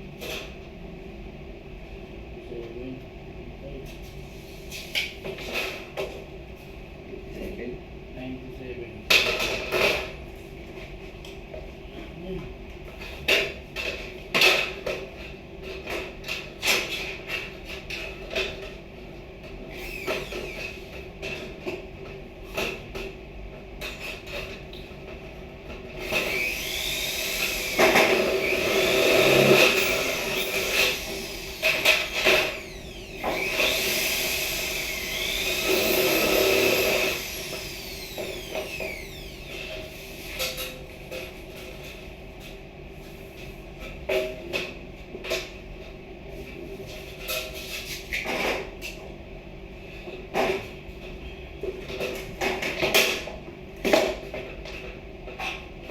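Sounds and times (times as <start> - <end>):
power tool working wood: 19.8 - 20.7, 26.0 - 39.7.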